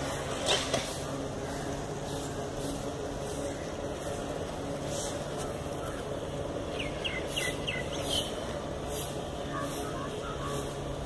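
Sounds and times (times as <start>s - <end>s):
outdoor background noise: 0.0s - 11.0s
bird chirping: 5.3s - 8.6s, 9.4s - 10.9s.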